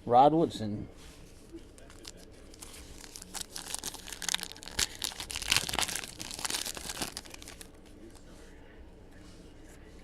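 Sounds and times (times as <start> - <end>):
card pack wrappers tearing and crinkling: 1.8 - 7.8.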